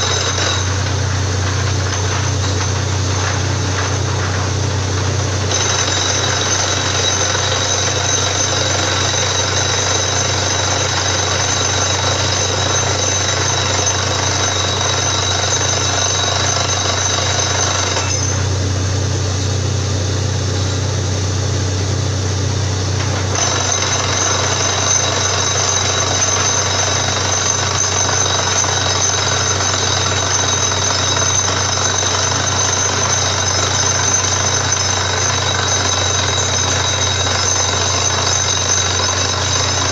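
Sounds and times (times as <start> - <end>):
heavy engine hum: 0.0 - 14.9
drilling rig drilling din: 0.0 - 18.7, 22.3 - 39.9.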